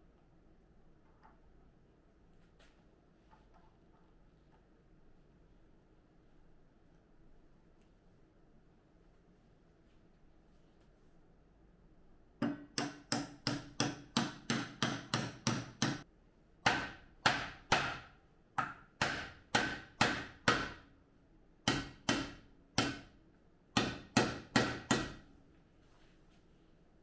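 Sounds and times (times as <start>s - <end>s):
hammer striking metal: 12.4s - 16.0s, 21.7s - 23.1s.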